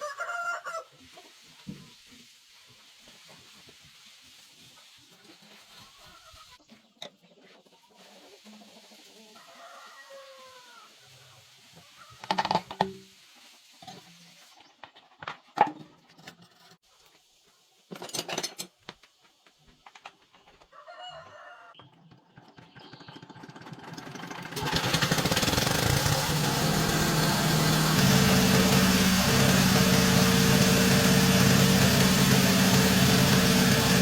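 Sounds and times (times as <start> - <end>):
chickens clucking: 4.8 - 10.2
diesel engine running: 24.6 - 34.0.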